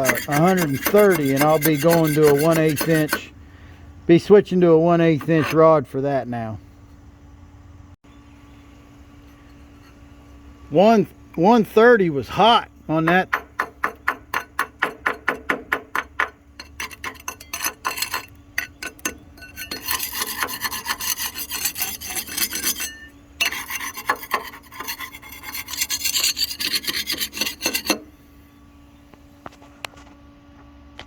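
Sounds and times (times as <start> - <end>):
wire brush scrubbing metal: 0.0 - 3.3, 13.9 - 28.1.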